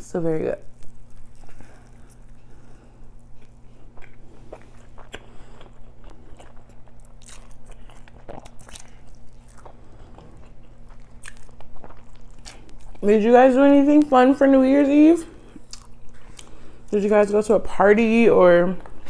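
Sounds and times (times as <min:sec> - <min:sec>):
low electrical hum: 0:00.0 - 0:19.0
chewing and biting: 0:00.6 - 0:13.0, 0:15.5 - 0:16.6.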